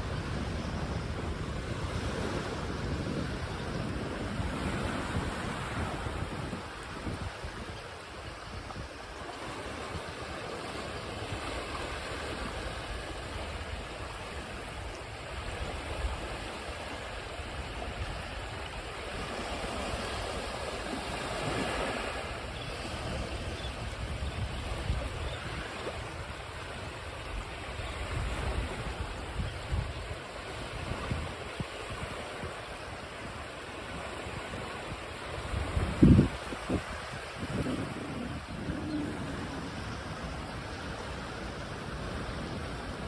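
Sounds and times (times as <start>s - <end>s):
ocean waves washing onto shore: 0.0s - 43.0s.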